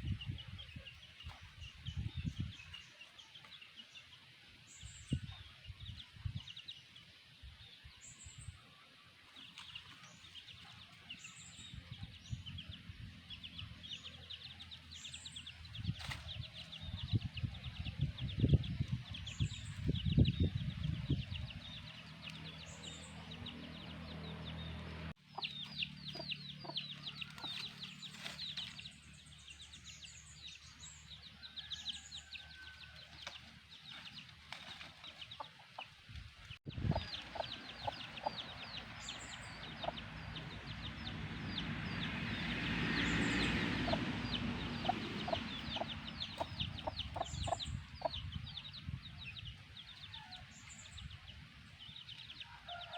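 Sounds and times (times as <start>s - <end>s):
chicks peeping: 9.2s - 52.9s
hen clucking: 36.7s - 40.9s, 43.8s - 48.3s.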